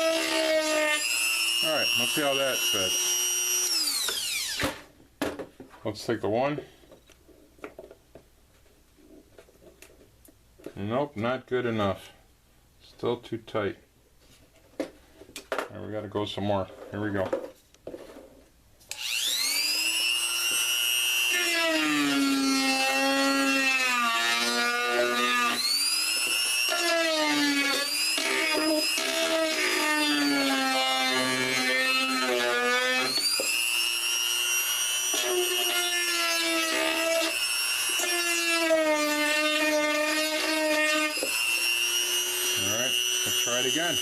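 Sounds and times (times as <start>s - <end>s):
rotary tool grinding: 18.9s - 44.0s.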